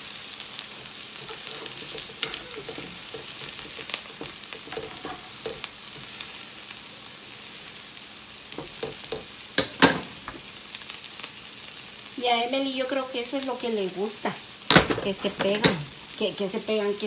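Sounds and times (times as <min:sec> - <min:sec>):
food sizzling on a griddle: 0:00.0 - 0:17.0
scraping of food being turned: 0:00.6 - 0:06.3.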